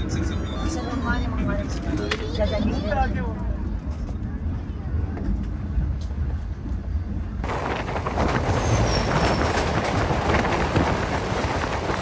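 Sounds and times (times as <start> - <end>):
passenger train running: 0.0 - 12.0
train rushing past: 6.4 - 12.0
wheels clattering over rail joints: 7.4 - 12.0
high wheel squeal: 8.4 - 9.9.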